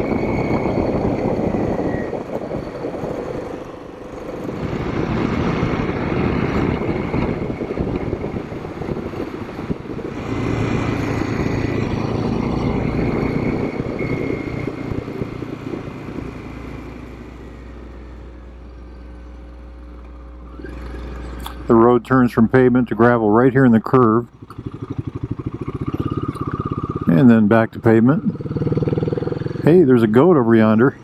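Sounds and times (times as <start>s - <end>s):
wind noise: 0.0s - 18.8s
motorcycle engine running: 0.0s - 31.0s.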